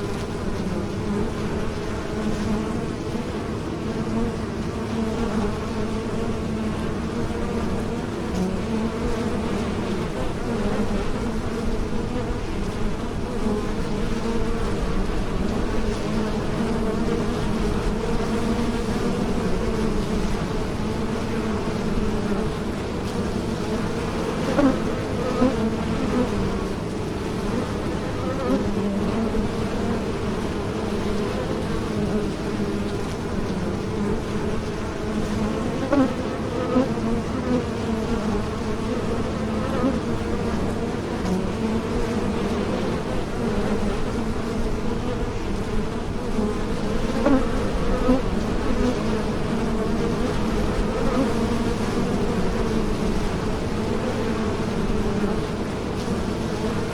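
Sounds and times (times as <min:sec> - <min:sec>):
bees buzzing in flight: 0:00.0 - 0:56.9.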